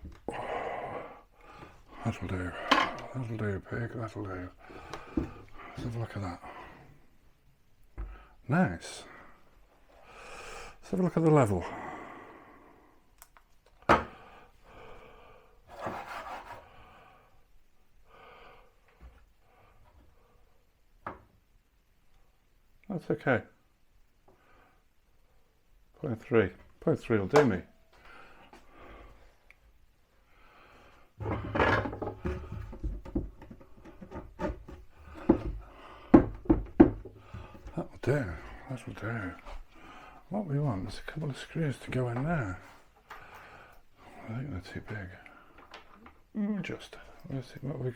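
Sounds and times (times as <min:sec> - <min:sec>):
breathing: 0:00.3 - 0:03.0, 0:04.6 - 0:05.8, 0:06.4 - 0:07.1, 0:08.0 - 0:08.4, 0:09.0 - 0:10.8, 0:11.6 - 0:13.1, 0:14.0 - 0:15.6, 0:16.6 - 0:17.4, 0:18.0 - 0:20.6, 0:24.3 - 0:25.5, 0:27.8 - 0:29.5, 0:30.2 - 0:31.4, 0:35.0 - 0:36.4, 0:37.1 - 0:37.7, 0:39.4 - 0:40.3, 0:42.6 - 0:44.4, 0:45.1 - 0:45.9
scraping and rubbing on wood: 0:15.7 - 0:16.7, 0:31.2 - 0:37.8
level knocking on wooden cabinet: 0:31.2 - 0:37.5.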